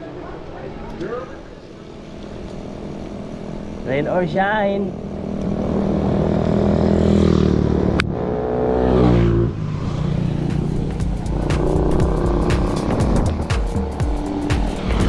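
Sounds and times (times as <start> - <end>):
vehicle engine passing by: 4.8 - 15.0
low rumble: 4.9 - 15.0
sharp ticks: 10.5 - 15.0.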